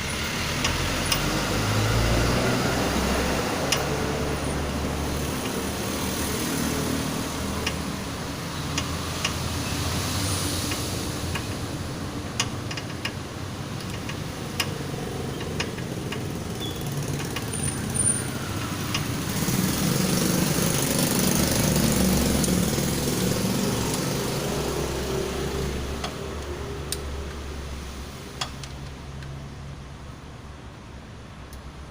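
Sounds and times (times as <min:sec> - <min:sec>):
vehicle engine running: 0:00.0 - 0:29.0
sharp clicks: 0:13.8 - 0:17.5.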